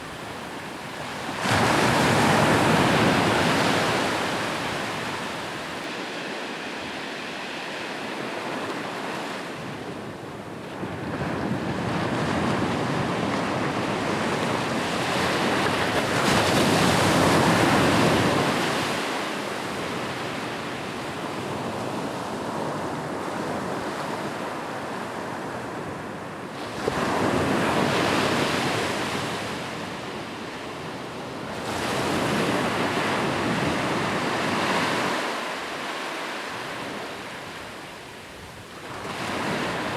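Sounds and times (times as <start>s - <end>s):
ocean waves breaking: 0.0s - 6.2s.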